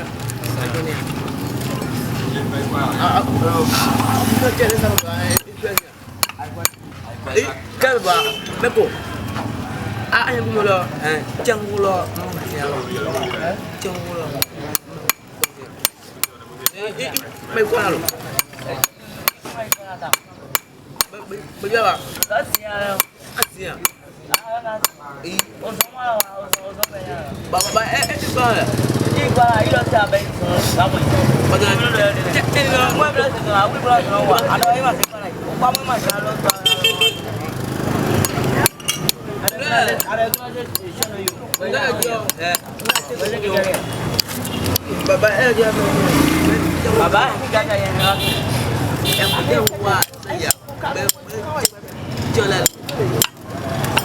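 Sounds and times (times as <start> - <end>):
people talking: 0.0 - 54.0
hammer striking metal: 4.6 - 6.9, 18.0 - 21.2, 22.1 - 28.2, 37.8 - 43.3.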